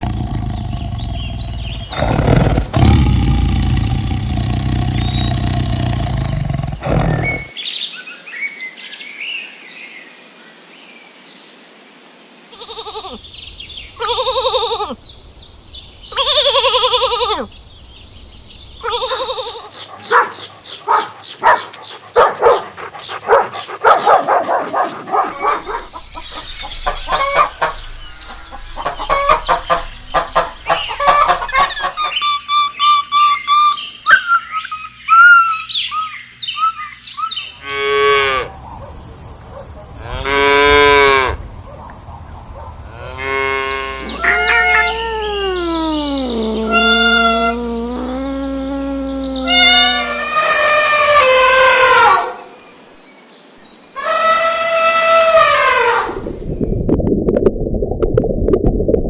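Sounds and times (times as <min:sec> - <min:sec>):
animal bleating: 0:12.5 - 0:13.2, 0:14.0 - 0:15.0, 0:16.2 - 0:17.5, 0:18.8 - 0:19.7, 0:42.9 - 0:51.4.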